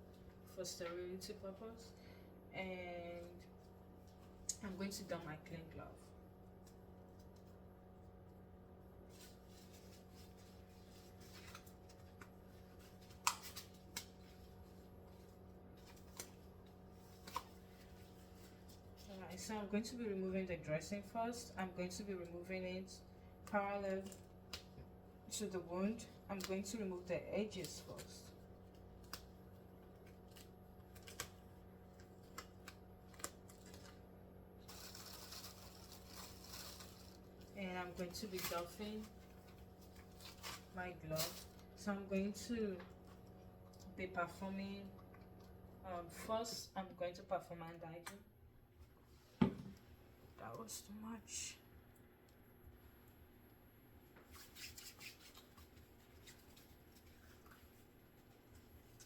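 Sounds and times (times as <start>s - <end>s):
steady low hum: 0.0s - 59.0s
dressing crinkly rustle: 9.0s - 20.0s, 33.2s - 43.7s, 54.2s - 59.0s.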